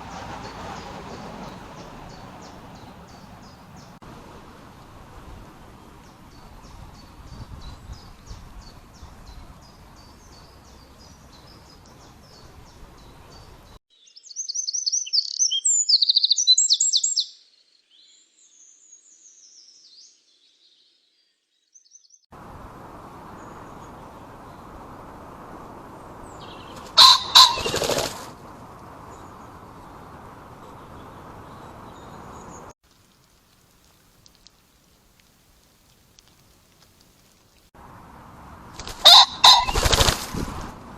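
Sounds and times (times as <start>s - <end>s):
warbling songbird song: 0.0s - 4.0s, 5.6s - 22.3s, 22.9s - 28.1s, 28.8s - 32.7s
background hiss: 0.0s - 14.7s, 27.9s - 39.1s.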